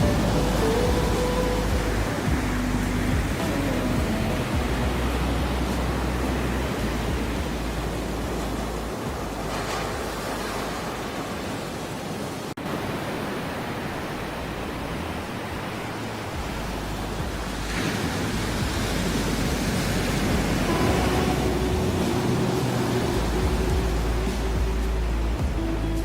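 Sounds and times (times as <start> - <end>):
held musical tones: 0.0 - 10.4, 16.4 - 26.0
ocean surf rushing: 0.0 - 26.0.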